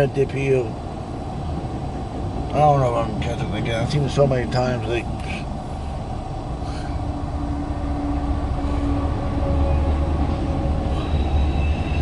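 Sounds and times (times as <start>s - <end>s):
freight train wheels rumbling: 0.0s - 12.0s
faint high squeal: 10.9s - 12.0s.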